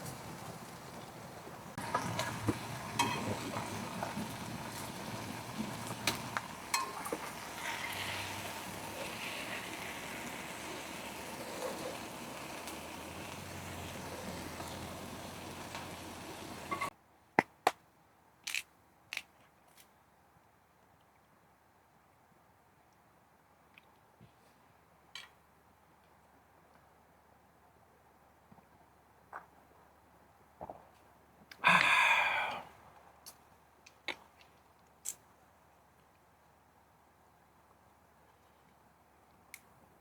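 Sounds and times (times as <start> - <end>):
food sizzling in a pan: 1.8 - 16.9
cooking utensils clicking: 6.0 - 7.9.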